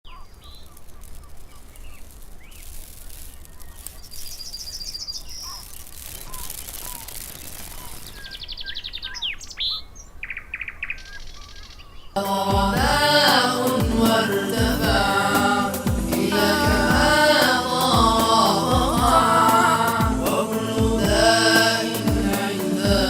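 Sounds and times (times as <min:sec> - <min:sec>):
faint steady hiss: 0:00.1 - 0:10.2, 0:12.2 - 0:23.0
loud music: 0:12.2 - 0:23.0.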